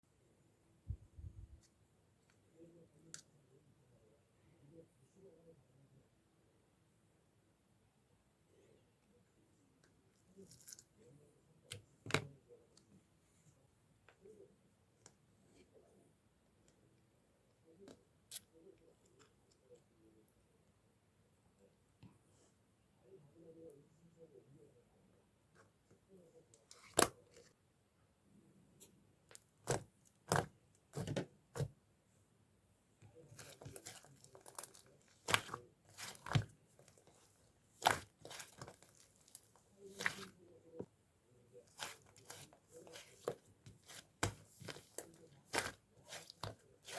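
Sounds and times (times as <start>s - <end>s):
slime squishing: 29.3s - 31.7s, 33.2s - 40.8s, 41.6s - 46.9s.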